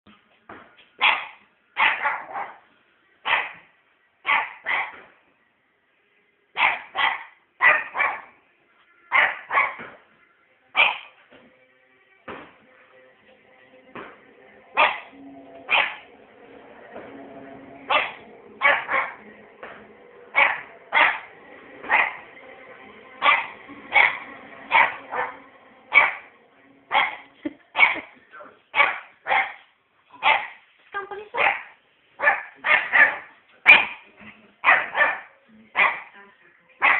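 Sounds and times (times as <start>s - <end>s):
puppy barking: 1.0s - 2.6s, 3.2s - 3.6s, 4.3s - 5.0s, 6.6s - 8.4s, 9.1s - 9.9s, 10.8s - 11.2s, 14.8s - 15.1s, 15.7s - 16.0s, 17.9s - 19.2s, 20.3s - 22.2s, 23.2s - 26.3s, 26.9s - 28.1s, 28.7s - 29.6s, 30.2s - 30.6s, 31.4s - 34.0s, 34.6s - 36.1s.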